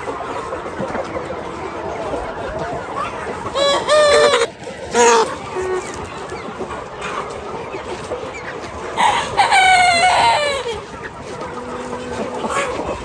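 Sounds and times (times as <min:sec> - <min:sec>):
chickens clucking: 0:00.0 - 0:13.0
rooster crowing: 0:03.6 - 0:05.8, 0:09.0 - 0:10.8.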